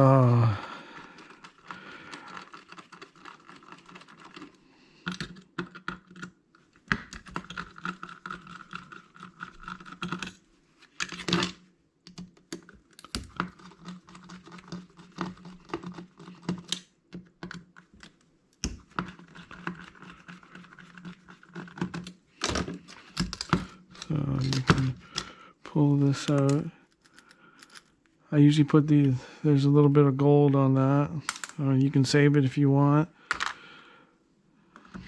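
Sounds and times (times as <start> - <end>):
metal parts clicking and rattling: 26.2 - 28.0.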